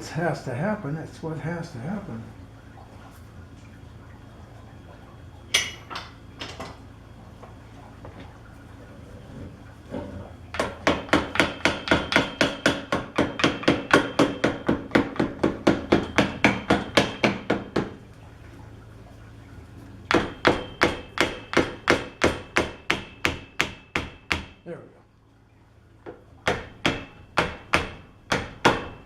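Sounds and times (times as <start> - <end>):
hammer tapping on metal: 10.6 - 17.9, 20.1 - 24.6.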